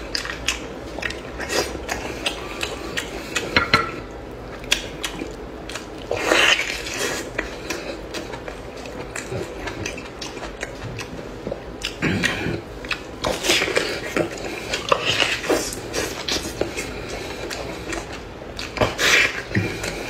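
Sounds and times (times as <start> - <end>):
wet chewing and lip-smacking: 0.0 - 20.0.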